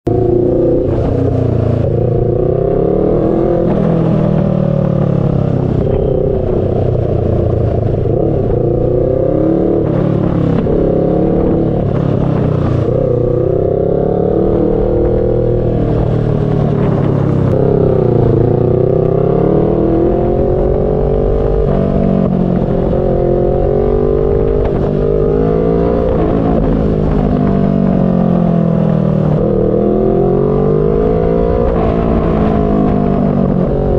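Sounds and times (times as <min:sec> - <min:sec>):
low wind rumble: 0:00.0 - 0:33.9
motorcycle engine accelerating: 0:00.0 - 0:33.9.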